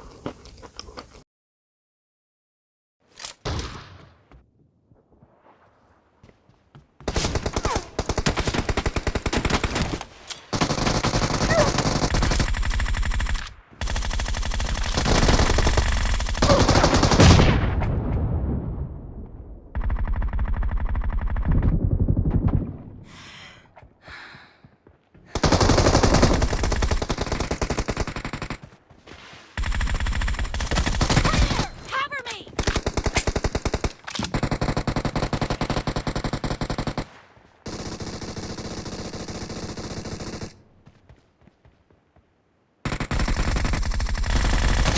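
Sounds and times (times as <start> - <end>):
automatic gunfire bursts: 10.5 - 17.4.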